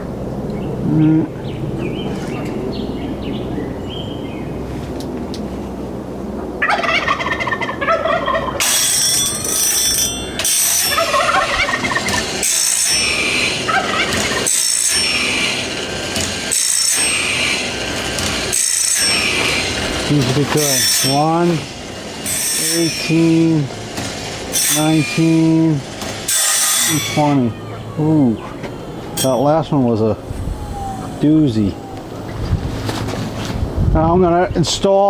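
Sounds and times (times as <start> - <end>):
sharpener motor humming: 8.6 - 27.5
grinding wheel grinding saw teeth: 8.6 - 29.8.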